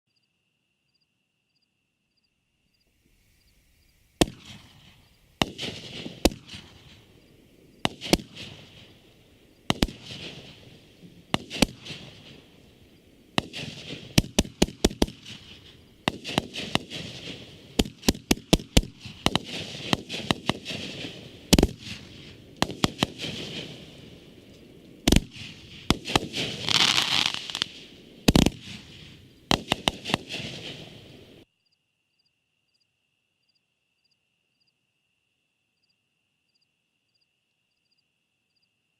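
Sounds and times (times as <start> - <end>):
firework crackling: 4.1 - 7.2, 7.8 - 31.4
firework shots and bursts: 4.2 - 31.4.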